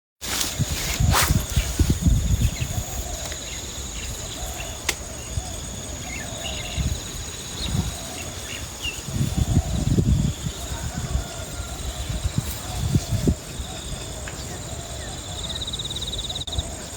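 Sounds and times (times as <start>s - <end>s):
insect trilling: 0.5s - 14.0s.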